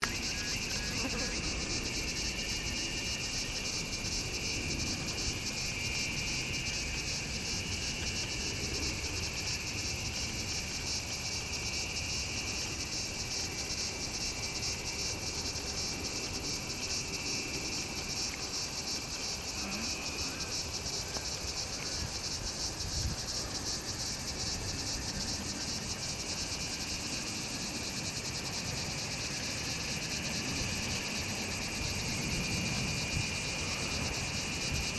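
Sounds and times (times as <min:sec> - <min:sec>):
high insect chirring: 0:00.0 - 0:08.5, 0:10.9 - 0:34.9
lower insect trill: 0:00.0 - 0:34.9.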